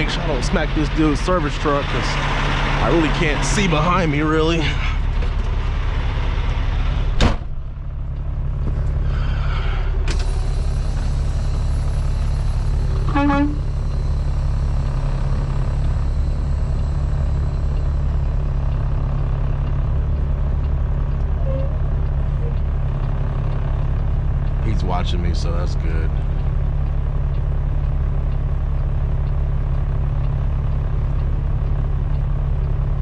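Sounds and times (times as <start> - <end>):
truck diesel engine running: 0.0 - 33.0
short pitched sound: 21.3 - 22.6.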